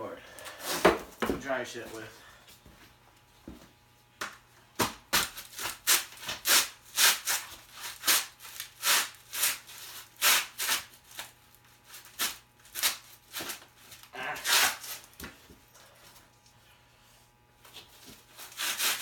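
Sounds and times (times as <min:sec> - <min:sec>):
rubbing or scuffing sounds: 0:05.2 - 0:15.5, 0:17.6 - 0:19.0.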